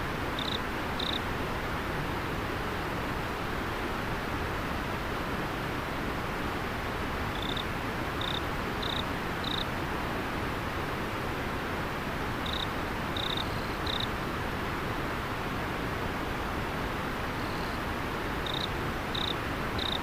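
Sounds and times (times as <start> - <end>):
river water flowing: 0.0 - 20.0
cricket chirping: 0.4 - 1.2, 7.3 - 9.7, 12.4 - 14.1, 18.4 - 20.0.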